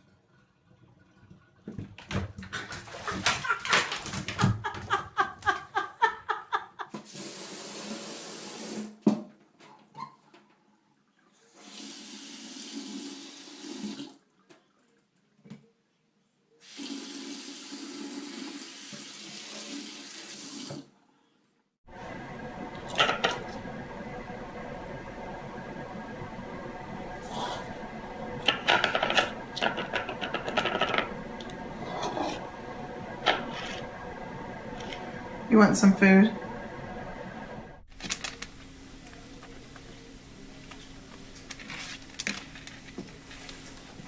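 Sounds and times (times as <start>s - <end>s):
water running from a tap: 7.1s - 8.9s, 11.5s - 14.2s, 16.6s - 20.9s.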